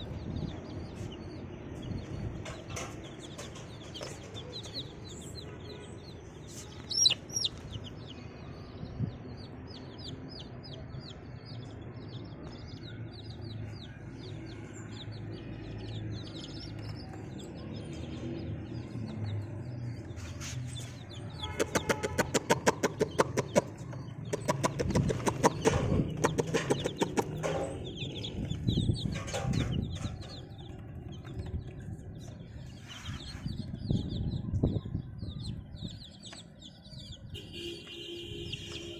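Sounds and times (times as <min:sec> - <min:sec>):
chicks peeping: 0:00.0 - 0:38.9
rapid taps: 0:21.6 - 0:27.6.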